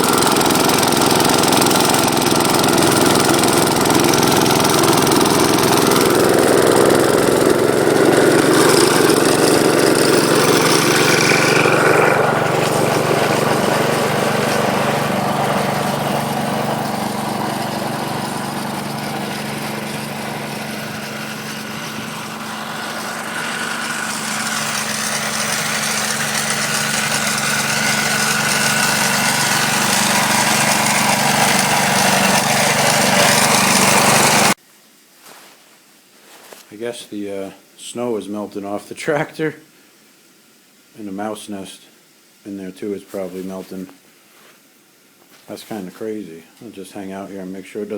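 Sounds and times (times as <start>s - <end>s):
walk-behind tractor engine running: 0.0s - 34.6s.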